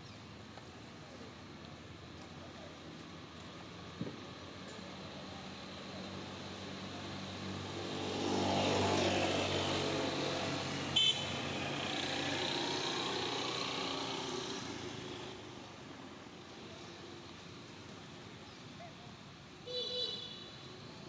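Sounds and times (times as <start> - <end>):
vehicle engine passing by: 5.4 - 15.6.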